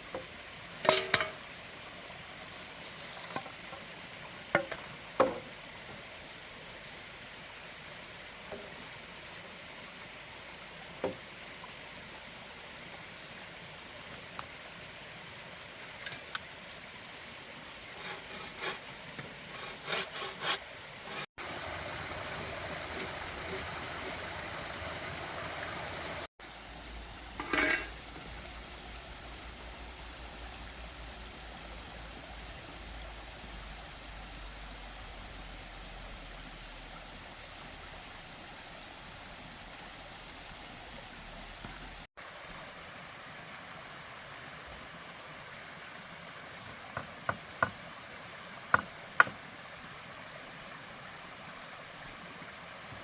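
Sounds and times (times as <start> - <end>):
outdoor hiss: 0.0 - 53.0.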